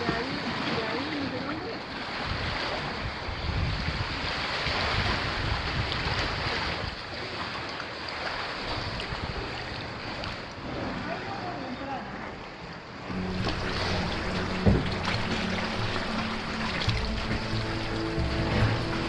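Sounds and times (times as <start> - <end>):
wind rumbling on microphone: 2.1 - 7.2
sea water sloshing: 12.1 - 19.0.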